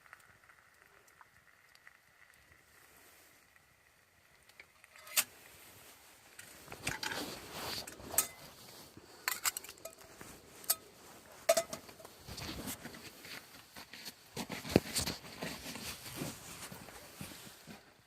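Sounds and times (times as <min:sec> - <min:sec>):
rustling: 0:04.8 - 0:18.0.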